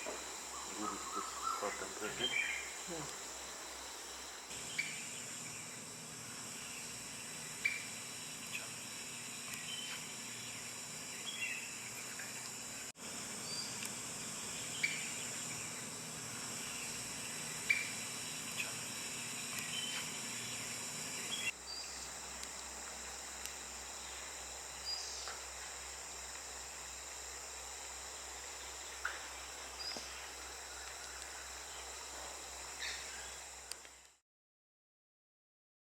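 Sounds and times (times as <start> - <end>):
high-pitched insect chorus: 0.0 - 34.1
bird chirps: 0.5 - 2.8.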